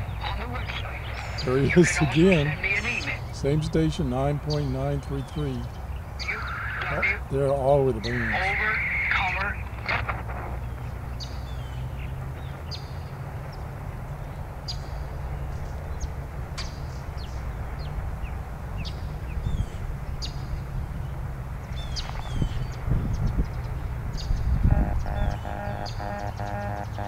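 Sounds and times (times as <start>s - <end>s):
radio static hiss: 0.0s - 11.0s
birds chirping: 0.0s - 27.0s
low rumble: 0.0s - 27.0s.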